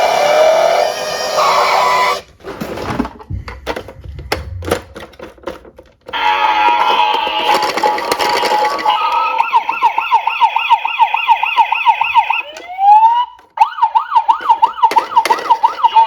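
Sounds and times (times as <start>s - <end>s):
siren rising wind-up: 0.0s - 2.2s, 8.8s - 16.0s
toy police siren yelping: 0.0s - 2.2s, 6.2s - 16.0s.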